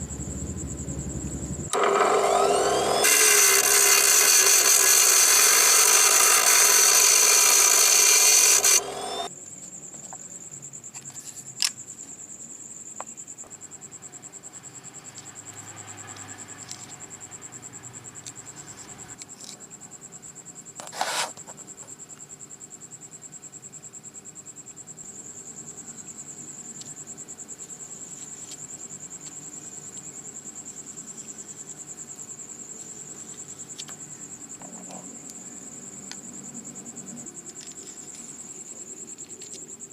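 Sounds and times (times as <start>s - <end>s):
power tool running loudly: 0.0s - 9.3s
cricket chirping: 0.0s - 39.9s.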